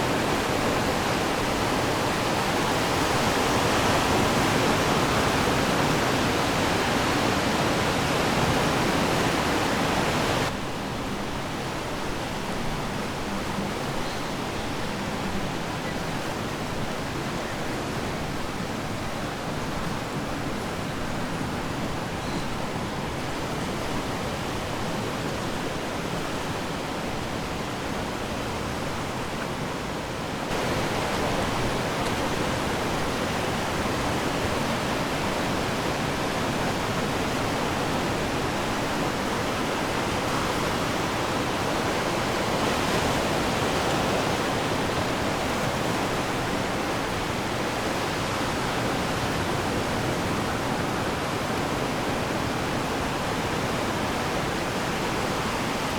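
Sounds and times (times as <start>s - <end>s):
ocean waves breaking: 30.5s - 55.9s.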